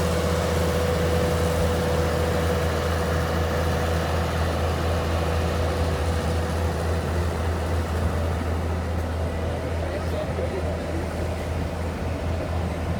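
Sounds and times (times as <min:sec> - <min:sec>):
heavy engine humming: 0:00.0 - 0:12.9.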